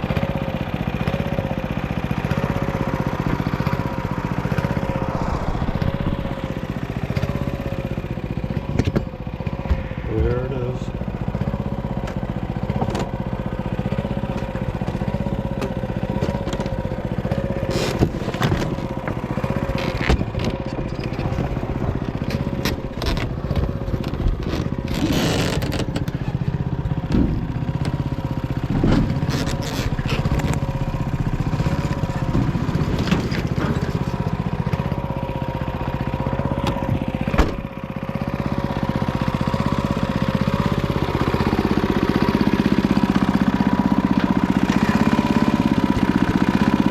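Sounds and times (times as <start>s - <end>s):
tractor engine running: 0.0s - 46.9s
wavering whine: 3.4s - 12.7s
sharp clunks and knocks: 27.1s - 27.4s, 36.6s - 37.6s.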